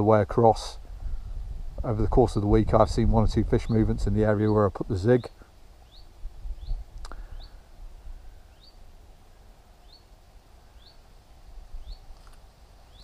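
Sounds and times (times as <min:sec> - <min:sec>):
small bird chirping: 0:05.2 - 0:07.6, 0:08.4 - 0:08.9, 0:09.8 - 0:10.1, 0:10.7 - 0:11.1, 0:11.7 - 0:13.0.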